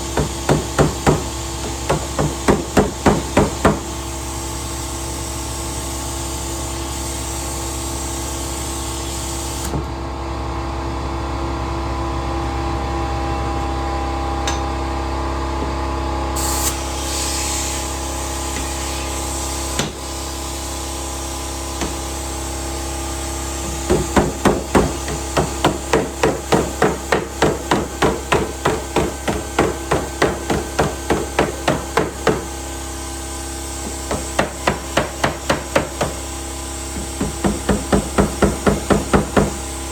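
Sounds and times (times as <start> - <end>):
hammer tapping on sheet metal: 0.2 - 3.9, 23.7 - 32.5, 33.8 - 36.2, 37.0 - 39.6
steady background hum: 21.5 - 39.9.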